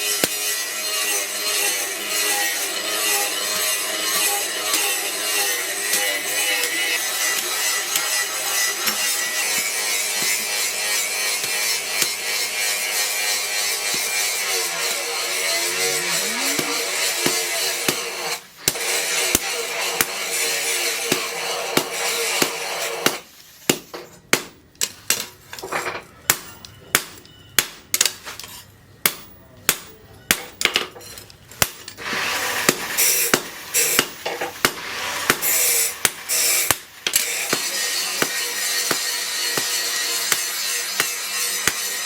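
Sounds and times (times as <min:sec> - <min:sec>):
steady harsh noise: 0:00.0 - 0:23.1, 0:32.0 - 0:42.0
hammer striking steel: 0:00.0 - 0:24.5, 0:26.2 - 0:42.0.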